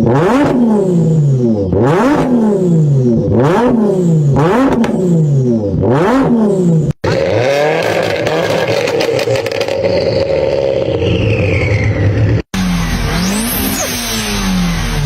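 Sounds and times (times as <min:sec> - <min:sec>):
car engine revving: 0:00.0 - 0:15.0
exhaust crackles and pops: 0:07.0 - 0:11.6.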